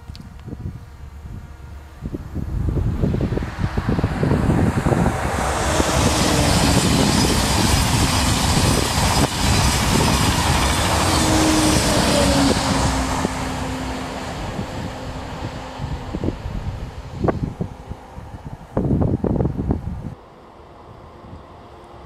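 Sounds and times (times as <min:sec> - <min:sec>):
high-speed train passing: 0:00.0 - 0:22.0.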